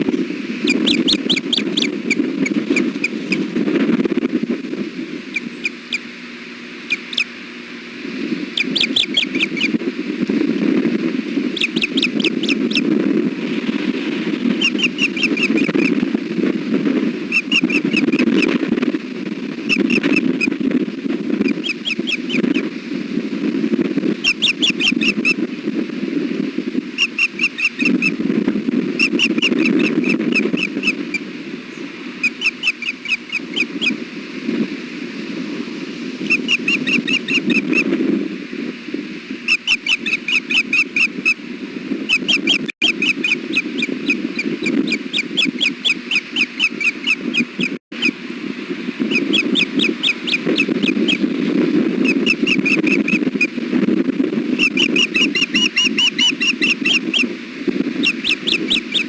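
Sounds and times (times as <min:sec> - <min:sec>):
osprey chirping alert calls: 0:00.0 - 0:03.5, 0:05.3 - 0:06.1, 0:06.8 - 0:07.4, 0:08.5 - 0:09.8, 0:11.5 - 0:12.9, 0:14.5 - 0:16.0, 0:17.3 - 0:18.6, 0:19.7 - 0:20.6, 0:21.4 - 0:22.7, 0:24.2 - 0:25.4, 0:27.0 - 0:28.2, 0:29.0 - 0:34.0, 0:36.2 - 0:37.9, 0:39.5 - 0:41.4, 0:42.1 - 0:48.2, 0:49.0 - 0:51.3, 0:52.0 - 0:53.6, 0:54.6 - 0:57.3, 0:58.0 - 0:59.0
wind rumble on microphone: 0:00.0 - 0:59.0.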